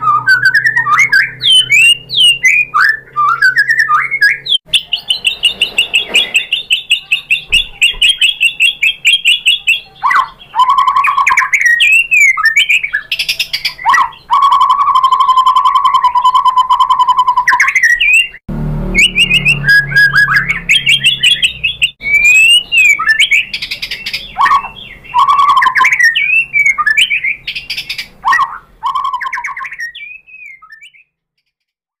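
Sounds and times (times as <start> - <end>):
bird singing: 0.0 - 31.7.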